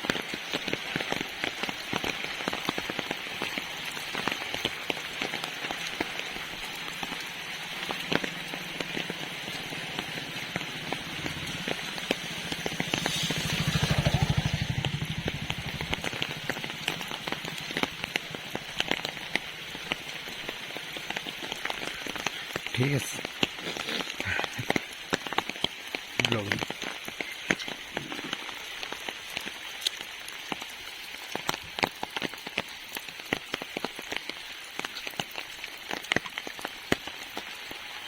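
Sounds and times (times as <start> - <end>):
raindrops clicking on an umbrella: 0.0 - 38.0
steady rain: 0.0 - 38.0
low rumble: 12.7 - 18.8.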